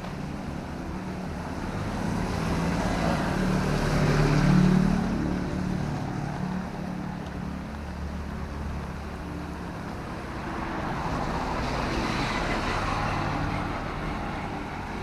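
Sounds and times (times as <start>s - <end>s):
vehicle passing on wet road: 1.7s - 6.6s.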